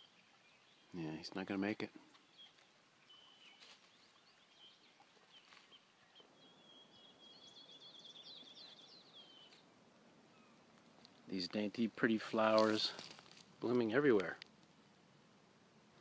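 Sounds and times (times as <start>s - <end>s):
faint bird chirps: 0.0s - 10.7s.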